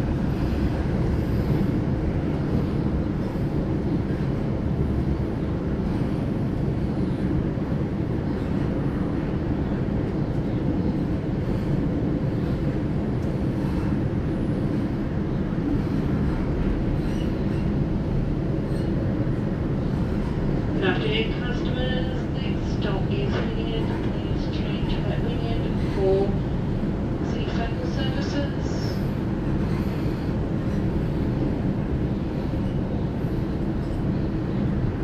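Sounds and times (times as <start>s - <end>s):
train rumble from inside carriage: 0.0s - 35.0s.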